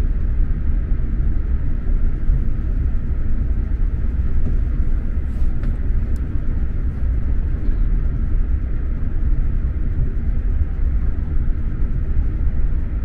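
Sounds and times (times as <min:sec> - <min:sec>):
train wheels rumbling on track: 0:02.1 - 0:08.2.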